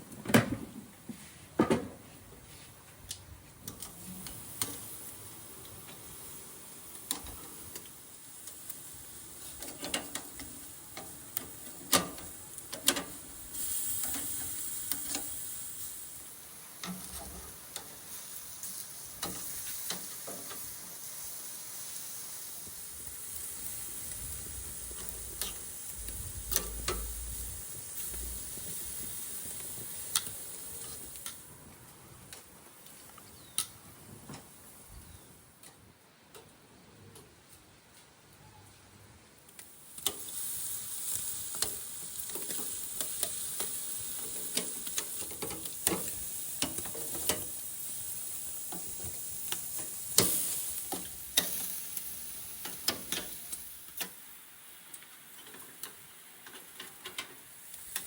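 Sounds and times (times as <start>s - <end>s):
meat sizzling on grill: 3.6s - 35.3s, 39.5s - 58.0s
sharp clicks and knocks: 25.0s - 27.2s.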